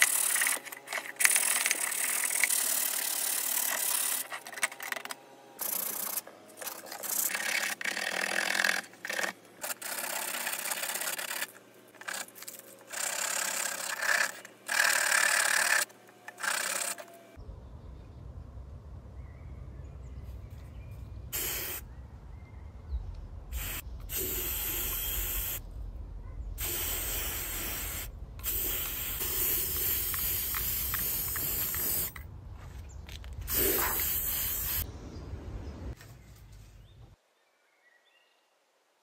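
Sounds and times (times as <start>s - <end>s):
spray paint can hissing: 0.0s - 0.6s, 1.2s - 4.2s, 5.6s - 7.6s, 21.4s - 21.8s, 23.5s - 25.6s, 26.6s - 32.2s, 33.5s - 34.9s.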